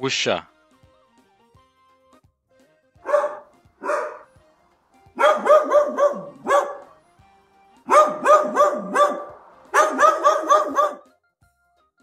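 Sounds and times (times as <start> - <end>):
dog yapping: 3.0 - 4.4, 5.2 - 6.9, 7.9 - 11.1.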